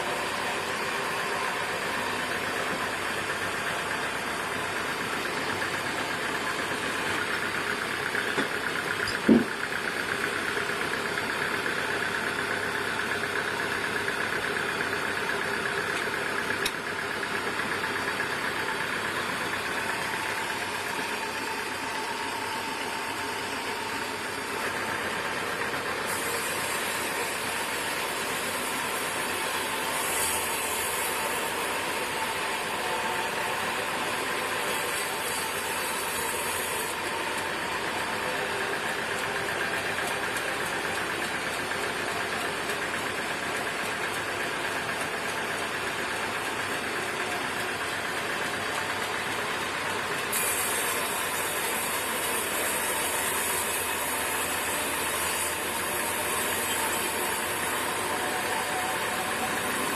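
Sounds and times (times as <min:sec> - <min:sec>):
sawmill machinery running: 0:00.0 - 0:59.9
loud knock: 0:09.2 - 0:09.5.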